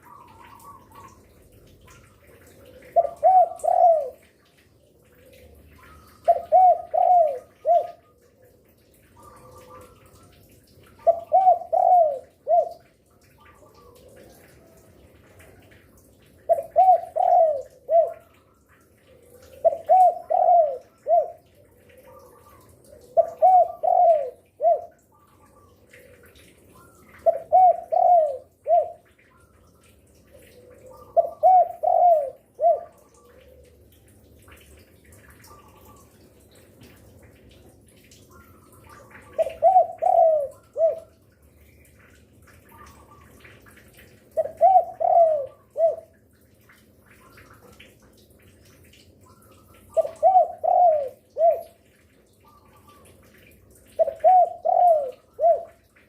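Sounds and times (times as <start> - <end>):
dove cooing: 0.0 - 4.3, 5.0 - 10.3, 10.9 - 14.6, 16.4 - 29.4, 30.2 - 33.9, 38.3 - 41.3, 44.3 - 46.2, 49.4 - 51.8, 52.5 - 56.0
small birds twittering: 0.0 - 8.4, 38.2 - 43.6.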